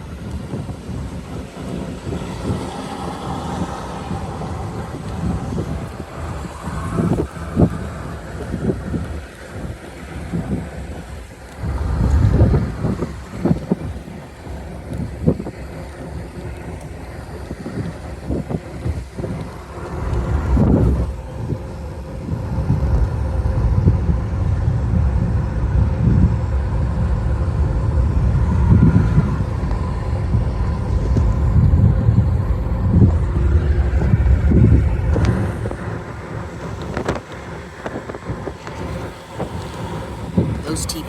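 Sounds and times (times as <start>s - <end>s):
vehicle road and wind noise: 0.0s - 41.0s.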